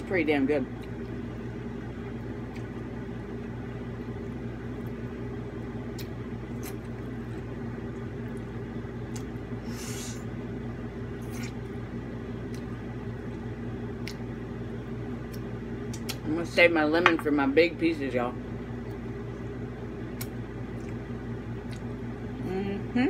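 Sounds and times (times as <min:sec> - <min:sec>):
steady low hum: 0:00.0 - 0:23.0
person chewing and smacking: 0:02.0 - 0:09.5, 0:11.2 - 0:11.8, 0:12.4 - 0:14.4, 0:15.2 - 0:16.2, 0:20.1 - 0:22.2.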